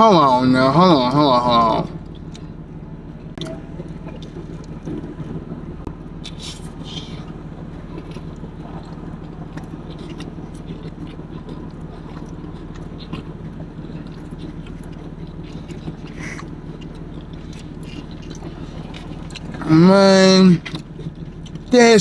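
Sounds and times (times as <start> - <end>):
steady low hum: 0.0 - 22.0
person chewing food: 1.9 - 19.7, 20.5 - 21.7
wet mouth clicks: 6.2 - 7.4, 14.0 - 19.7.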